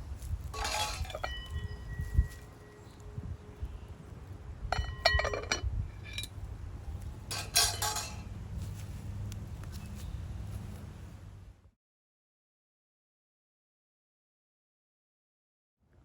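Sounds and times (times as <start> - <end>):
metal cookware clinking: 0.5 - 2.1, 4.7 - 6.3, 7.3 - 8.2.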